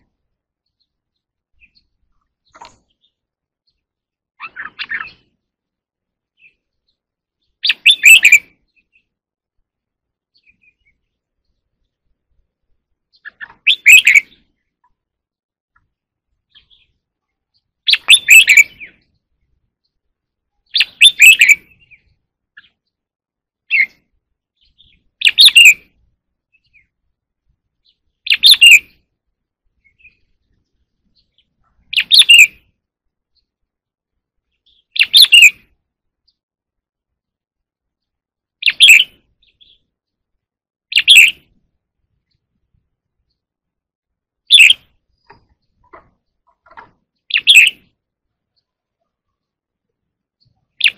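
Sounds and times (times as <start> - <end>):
bulbul singing: 6.2 - 9.3, 13.0 - 15.0, 15.7 - 27.0, 27.8 - 29.1, 29.8 - 33.6, 34.4 - 36.4, 38.0 - 40.2, 40.9 - 41.6, 44.3 - 50.9.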